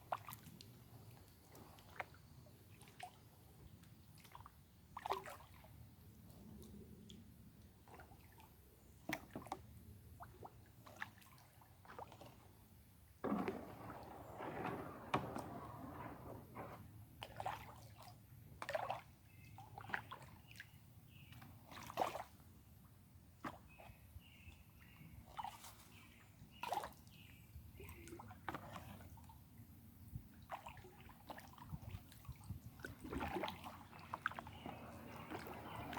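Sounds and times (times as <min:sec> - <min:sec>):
paddling splashes and drips: 0:00.0 - 0:05.8, 0:07.7 - 0:22.4, 0:30.3 - 0:35.9.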